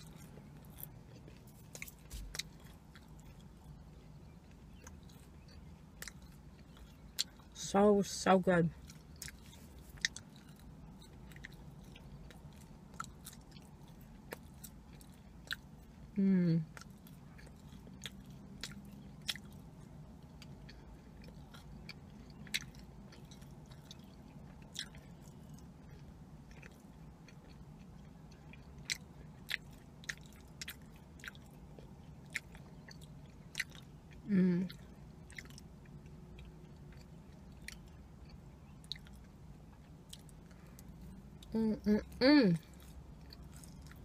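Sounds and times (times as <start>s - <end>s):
chewing crunchy cookie: 0.0s - 7.7s, 8.6s - 44.0s
woman humming: 16.2s - 16.6s, 34.3s - 34.7s, 41.5s - 42.6s.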